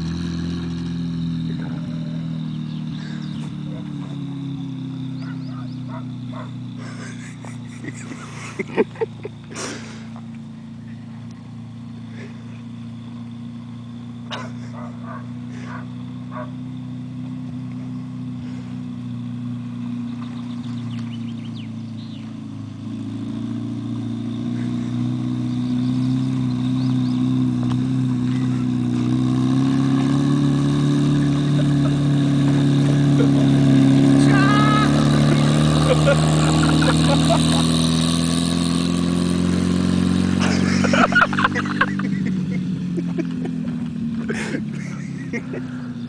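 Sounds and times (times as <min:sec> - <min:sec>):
car engine running: 0:00.0 - 0:46.0.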